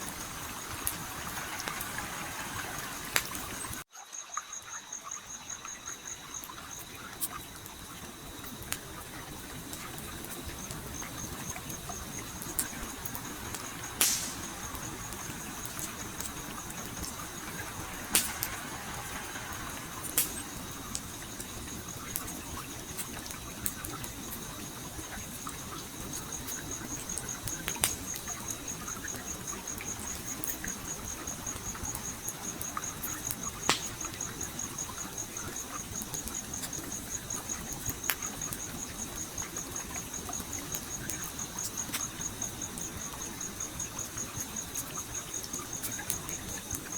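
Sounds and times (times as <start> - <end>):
campfire crackling and popping: 0.0 - 3.9, 5.4 - 46.9
stream flowing: 0.0 - 36.0
cricket trilling: 0.0 - 46.9.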